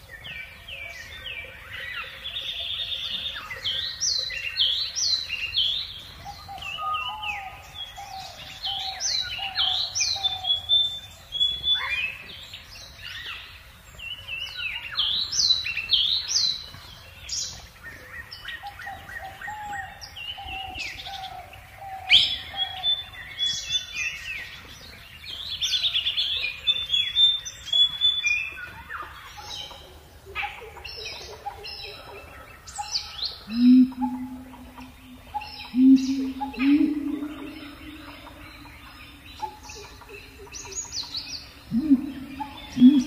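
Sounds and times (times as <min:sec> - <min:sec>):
birds chirping and whistling: 0:00.2 - 0:29.8, 0:30.4 - 0:43.0
lower bird call: 0:33.4 - 0:43.0.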